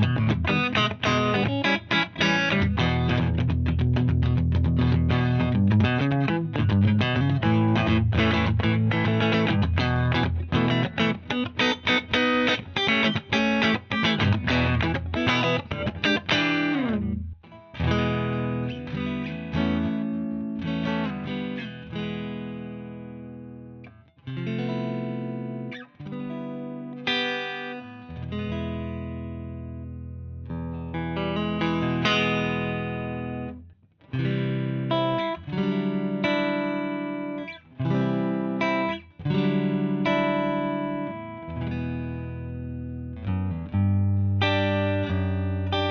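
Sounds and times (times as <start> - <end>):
electric guitar: 0.0 - 45.9.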